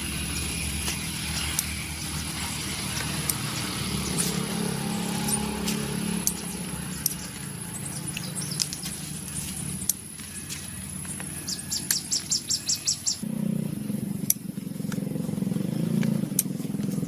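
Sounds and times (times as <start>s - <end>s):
motor humming: 0.0s - 17.0s
sharp clicks: 5.3s - 12.4s.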